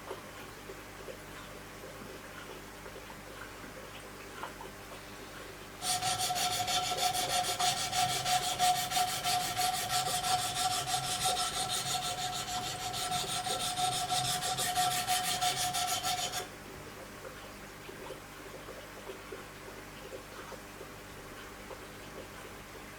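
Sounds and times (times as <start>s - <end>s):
sharpening stone scraping knife blade: 5.8s - 16.5s.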